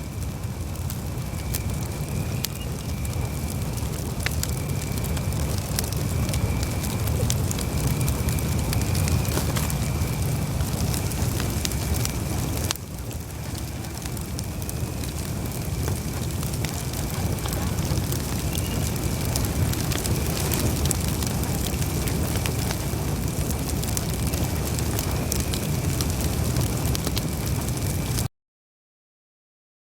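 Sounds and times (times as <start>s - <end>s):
burning wood crackling and popping: 0.0s - 28.3s
rumble of campfire flames: 0.0s - 28.3s.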